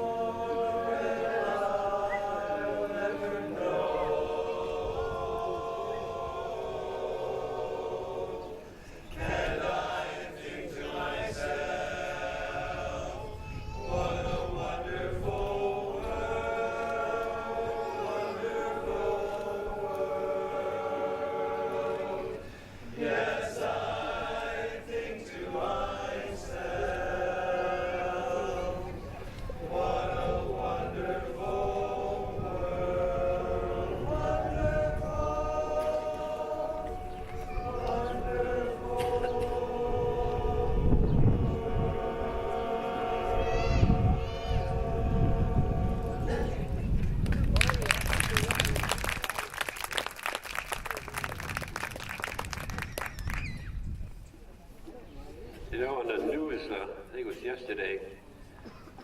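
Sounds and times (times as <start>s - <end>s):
a cappella chorus singing: 0.0s - 47.0s.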